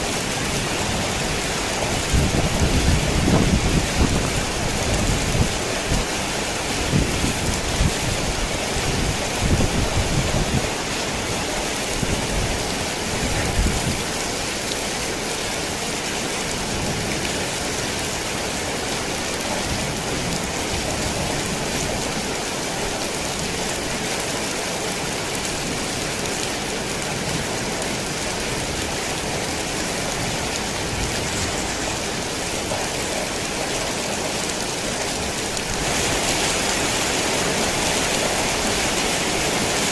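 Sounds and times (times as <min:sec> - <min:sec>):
heavy rain on a tin roof: 0:00.0 - 0:39.9
low thunder rumbling: 0:12.0 - 0:14.2.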